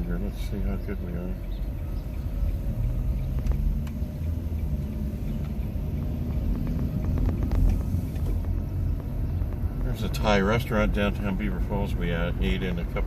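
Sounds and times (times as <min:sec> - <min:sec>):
tyre and road rumble in car: 0:00.0 - 0:13.0.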